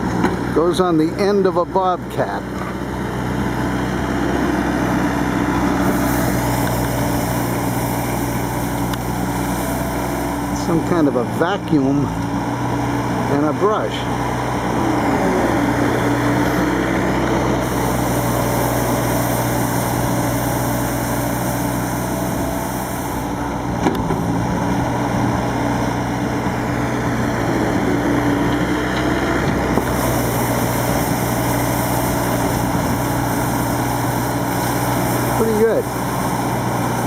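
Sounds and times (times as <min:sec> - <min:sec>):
loader engine drone: 0:00.0 - 0:37.0
sweeper rushing hiss: 0:05.8 - 0:10.6, 0:15.1 - 0:23.4, 0:29.9 - 0:37.0.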